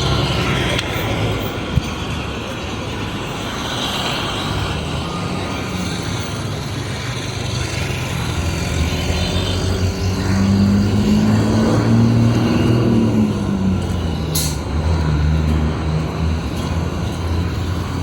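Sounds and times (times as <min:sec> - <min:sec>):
heavy vehicle low engine: 0:00.0 - 0:18.0
motor vehicle engines running: 0:00.0 - 0:18.0.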